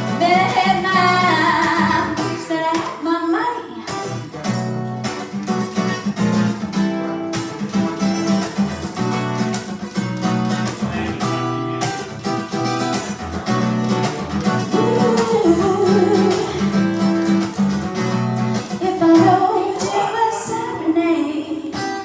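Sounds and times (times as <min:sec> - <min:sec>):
acoustic guitar strumming chords: 0:00.0 - 0:03.0, 0:03.7 - 0:22.0
person singing: 0:00.0 - 0:04.1, 0:10.8 - 0:12.0, 0:13.4 - 0:17.6, 0:18.7 - 0:22.0.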